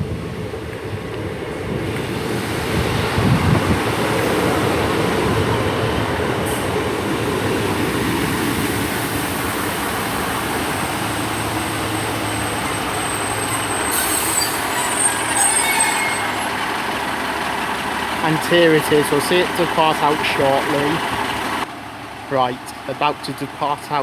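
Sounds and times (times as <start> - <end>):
train wheels and engines rumbling: 0.0 - 24.0
high-pitched brake squeal: 12.2 - 16.6.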